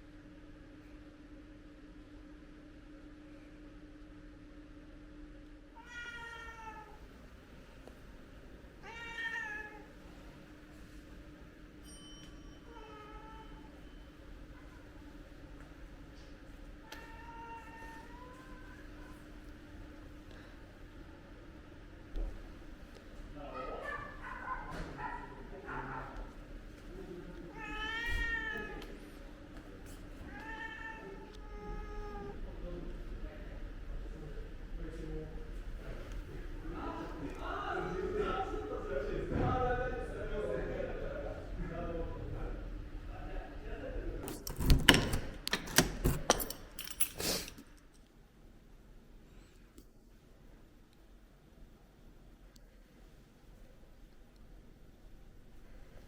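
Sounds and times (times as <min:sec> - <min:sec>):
cat meowing: 0:05.8 - 0:07.0, 0:08.8 - 0:09.9, 0:16.9 - 0:19.2, 0:27.5 - 0:28.9, 0:30.2 - 0:32.4.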